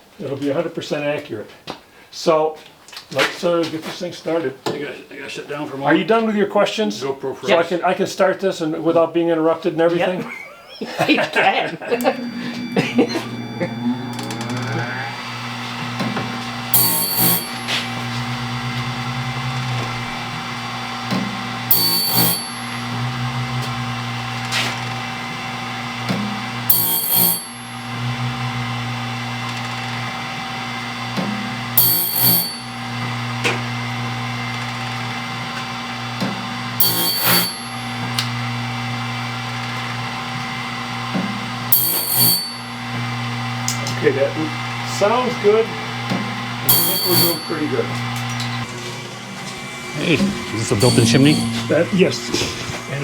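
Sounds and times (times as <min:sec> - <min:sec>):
electric motor hum: 0:11.9 - 0:53.0
loud mechanical bursts: 0:12.0 - 0:26.0, 0:36.8 - 0:38.2.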